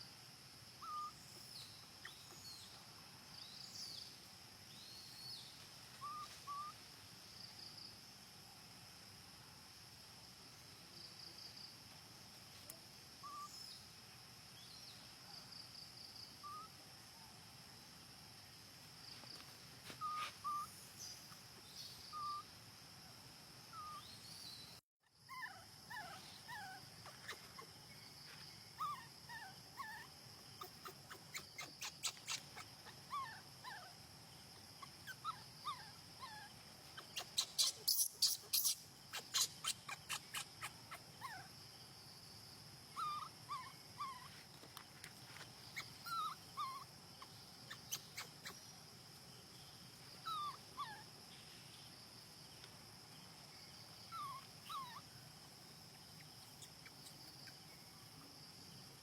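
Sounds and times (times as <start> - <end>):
baby monkey squeaking: 0.8 - 1.1, 6.0 - 6.8, 20.0 - 20.7, 25.3 - 27.7, 28.8 - 33.9, 34.8 - 41.5, 45.7 - 48.6, 54.2 - 55.0.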